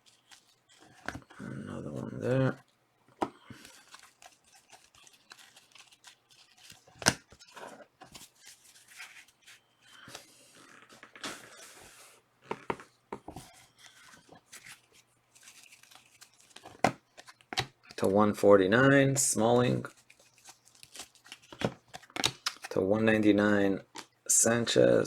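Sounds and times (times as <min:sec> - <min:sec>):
cards rustling: 0:00.0 - 0:24.5
foil wrappers crinkling and tearing: 0:03.5 - 0:10.1, 0:13.8 - 0:18.0, 0:19.9 - 0:22.8.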